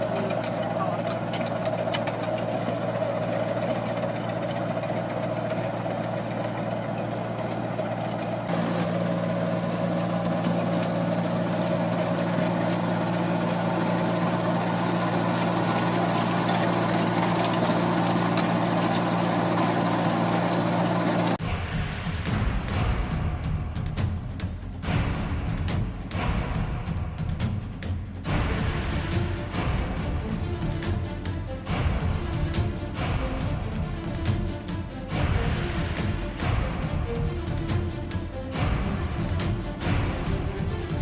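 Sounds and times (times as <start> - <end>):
engine running steadily: 0.0 - 41.0.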